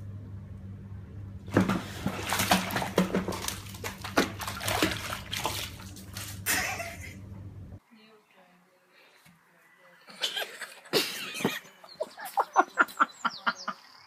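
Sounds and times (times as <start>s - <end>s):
low steady hum: 0.0s - 14.0s
water splashing and sloshing: 1.4s - 7.0s.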